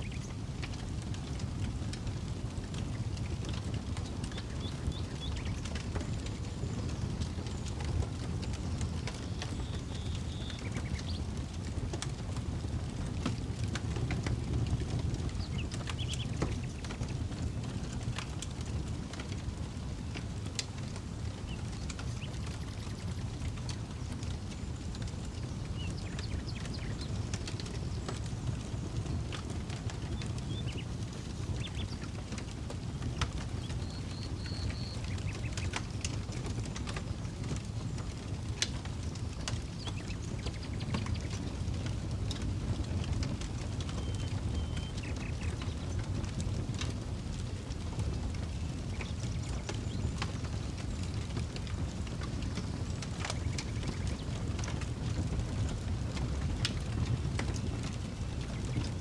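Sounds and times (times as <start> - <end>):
campfire crackling and popping: 0.0 - 59.0
wind rumble on microphone: 0.0 - 59.0
bird chirping: 44.0 - 45.5.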